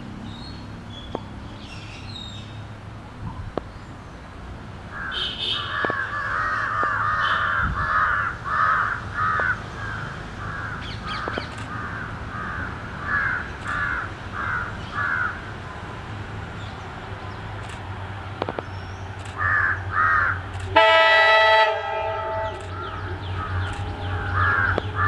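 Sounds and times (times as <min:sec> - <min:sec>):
crow cawing: 0:04.9 - 0:15.4, 0:19.4 - 0:20.4, 0:22.4 - 0:25.0.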